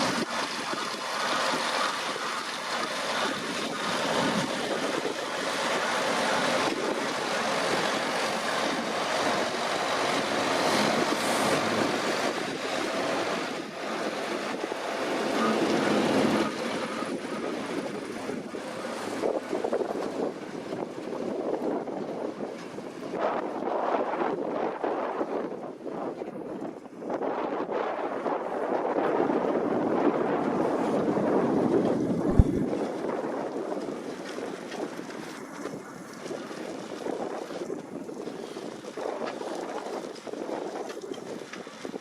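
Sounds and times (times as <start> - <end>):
tractor running steadily: 0.0 - 23.0
wind buffeting microphone: 0.0 - 42.0.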